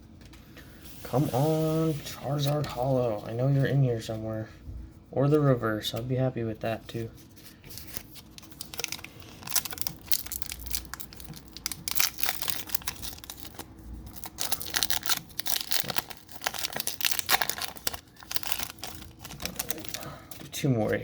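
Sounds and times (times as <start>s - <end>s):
foil wrapper tearing and crinkling: 7.8s - 20.1s.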